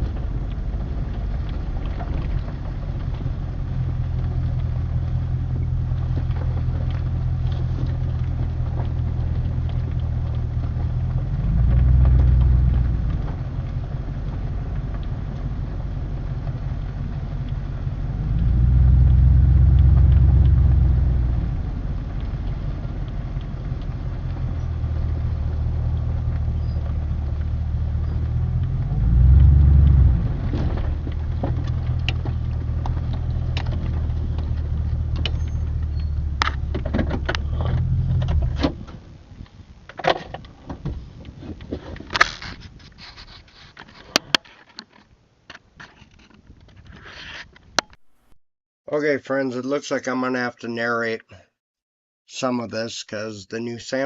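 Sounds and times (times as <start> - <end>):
vehicle engine drone: 0.0 - 44.1.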